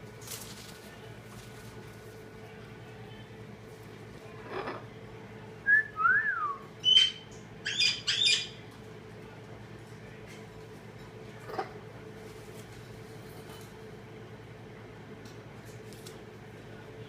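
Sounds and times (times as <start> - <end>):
lovebirds calling and chirping: 6.8 - 8.6.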